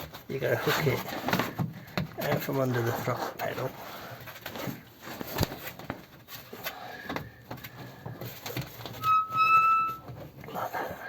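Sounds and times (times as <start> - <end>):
rubber mat scraping and rustling: 0.0 - 6.8
short high-pitched squeal: 9.0 - 10.1.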